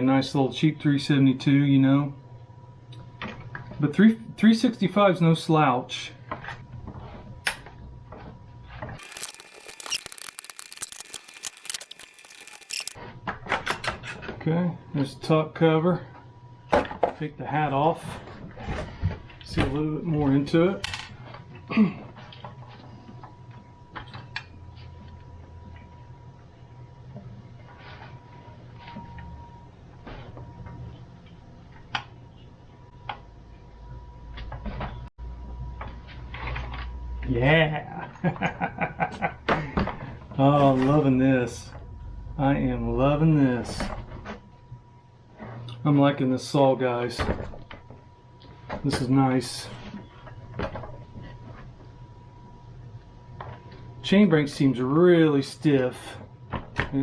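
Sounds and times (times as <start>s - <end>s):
clicks and knocks of parts handled: 9.0s - 13.0s.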